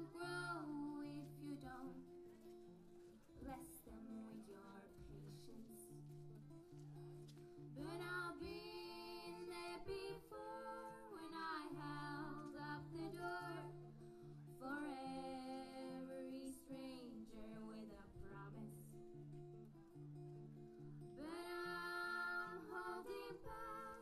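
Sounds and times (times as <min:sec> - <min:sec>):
quiet instrumental accompaniment: 0:00.0 - 0:24.0
woman singing held notes: 0:21.2 - 0:24.0.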